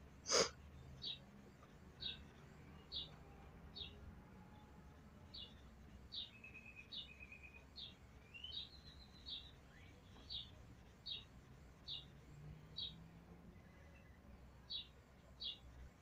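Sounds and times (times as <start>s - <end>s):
small bird chirping: 5.3s - 13.0s.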